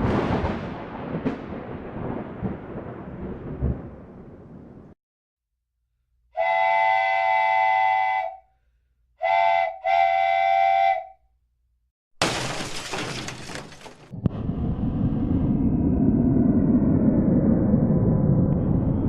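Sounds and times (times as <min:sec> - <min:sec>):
steam train whistle: 0:06.3 - 0:08.5, 0:09.2 - 0:11.2
loud crash of shattering: 0:12.2 - 0:14.1
low rumbling noise: 0:14.1 - 0:19.0.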